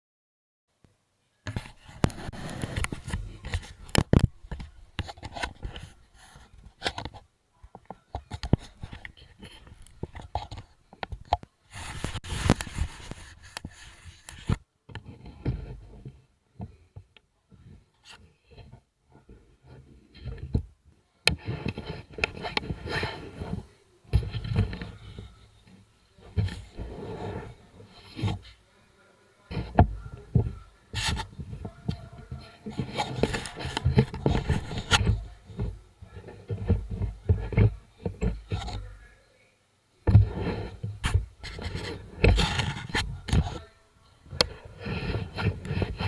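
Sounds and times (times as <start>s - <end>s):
rustling: 1.4s - 16.9s, 21.3s - 39.3s, 40.0s - 46.0s
scraping: 1.5s - 7.2s, 7.9s - 16.1s, 21.3s - 28.6s, 29.5s - 39.1s, 40.1s - 46.0s.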